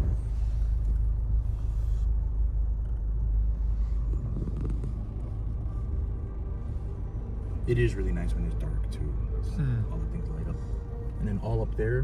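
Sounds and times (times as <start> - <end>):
car engine rumble: 0.0 - 9.1
road noise inside cabin: 0.0 - 12.0.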